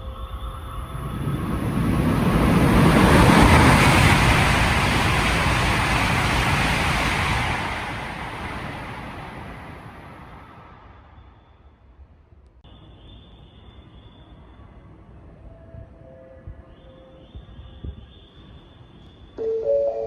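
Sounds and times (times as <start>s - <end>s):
high-speed train rushing past: 0.0s - 12.2s.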